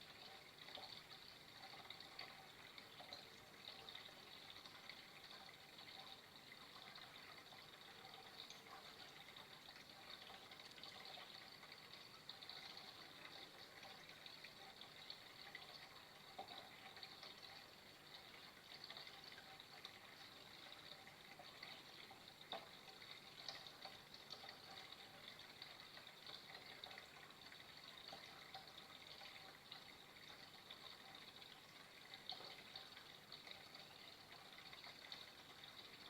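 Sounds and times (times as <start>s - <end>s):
water trickling: 0.0s - 36.0s.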